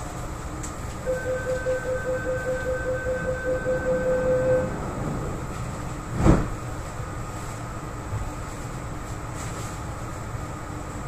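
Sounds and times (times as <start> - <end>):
train carriage low rumble: 0.0 - 11.0
rapid door warning beeps: 1.1 - 4.8.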